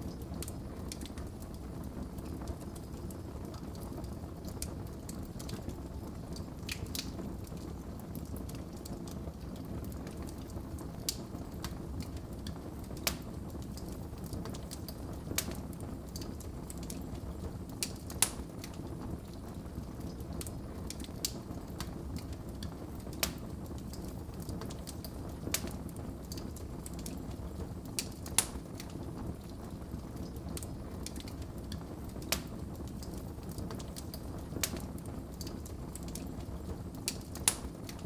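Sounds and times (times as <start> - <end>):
wood fire crackling and popping: 0.0 - 38.0.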